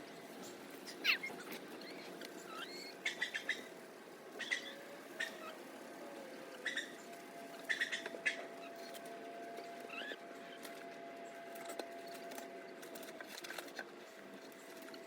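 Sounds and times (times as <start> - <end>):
chickens chirping: 0.2 - 5.7.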